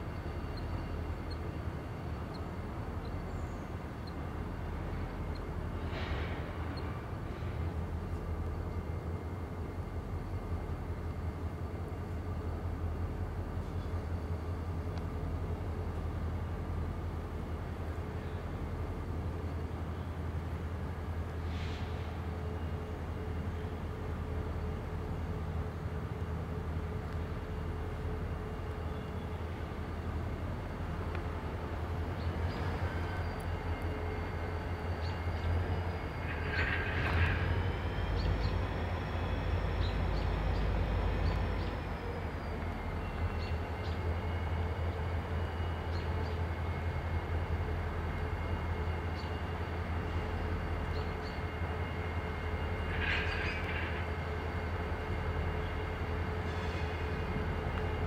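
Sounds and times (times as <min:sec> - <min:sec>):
diesel locomotive engine drone: 0:00.0 - 0:58.0
steel wheels squealing: 0:32.4 - 0:46.4, 0:52.5 - 0:54.3.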